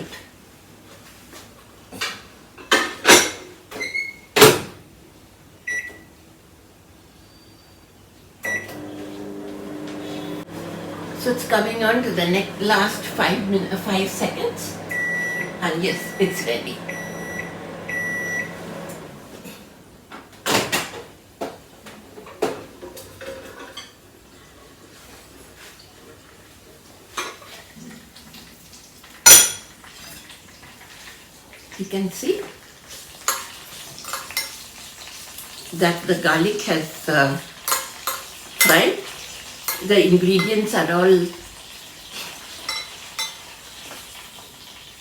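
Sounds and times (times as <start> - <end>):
microwave beep: 5.6 - 6.2, 8.4 - 19.4
short keypad beeps: 5.7 - 6.0
microwave oven humming: 8.4 - 20.1.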